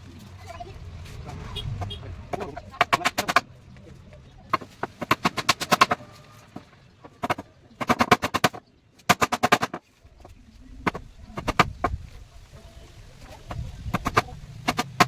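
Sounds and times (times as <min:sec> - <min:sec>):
hammer tapping chisel into wood: 0:02.3 - 0:03.5, 0:14.0 - 0:15.0.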